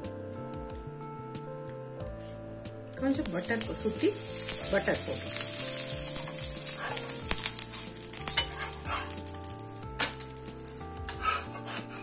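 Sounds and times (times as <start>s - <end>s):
butter sizzling on a griddle: 3.2s - 11.6s
metal spatula scraping griddle: 5.4s - 9.4s.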